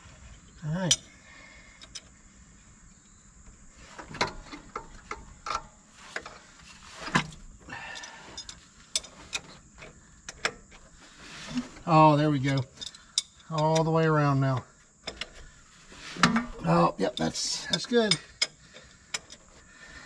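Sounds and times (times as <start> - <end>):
wrench clicking and clanking: 7.9 - 9.6, 12.4 - 14.0, 17.1 - 19.5.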